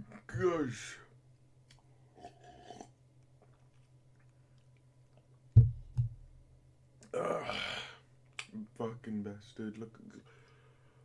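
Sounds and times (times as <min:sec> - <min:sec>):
person chewing a sandwich: 0:01.7 - 0:05.5
dull low thumps: 0:05.6 - 0:06.4.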